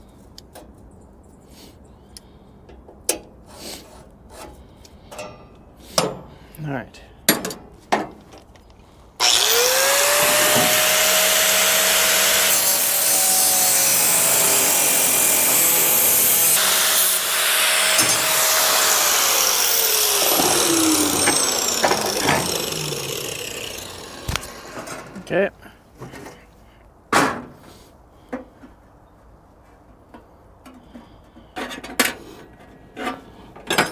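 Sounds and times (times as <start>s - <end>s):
power tool cutting metal: 9.2s - 25.2s.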